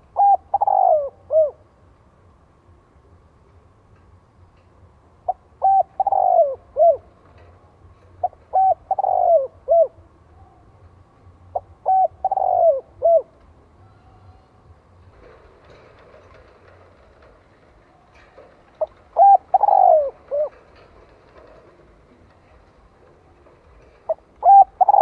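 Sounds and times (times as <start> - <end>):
dove cooing: 0.0 - 1.6, 5.3 - 7.2, 8.1 - 10.6, 11.5 - 14.6, 18.2 - 22.6, 23.9 - 25.0.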